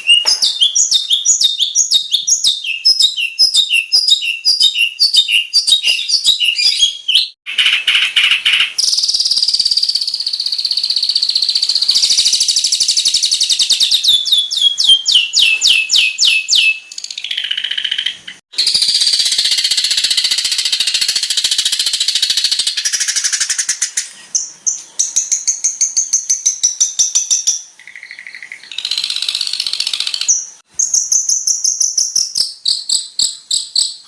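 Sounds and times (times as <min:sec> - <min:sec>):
shrike singing: 0:00.0 - 0:07.4.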